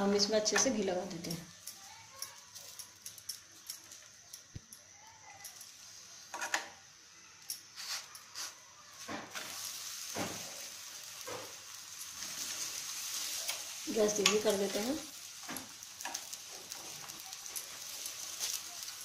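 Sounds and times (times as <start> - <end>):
flatbread sizzling in ghee: 0.0 - 19.0.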